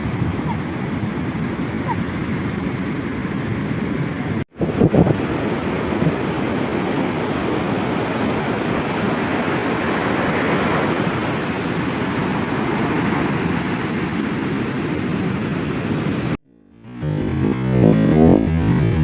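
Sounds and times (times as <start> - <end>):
sea surf washing on beach: 4.5 - 16.4.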